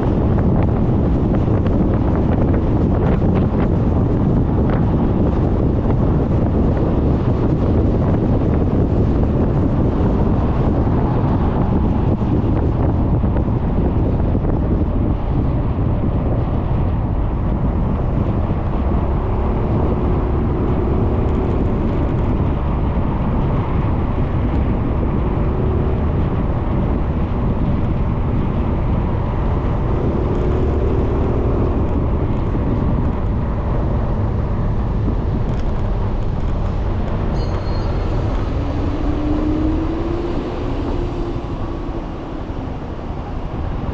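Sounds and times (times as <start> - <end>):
road noise: 0.0 - 43.9
wind on microphone: 0.0 - 43.9
rising whine: 17.6 - 43.9.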